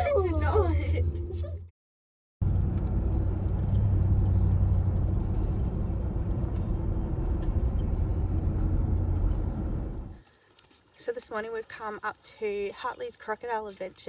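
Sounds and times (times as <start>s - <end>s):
car road and engine drone: 0.0s - 1.7s, 2.4s - 10.2s.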